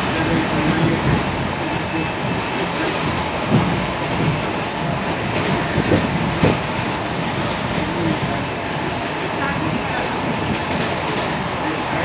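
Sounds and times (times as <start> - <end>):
train wheels rumbling: 0.0 - 12.0
wheels knocking on rail joints: 3.0 - 6.8.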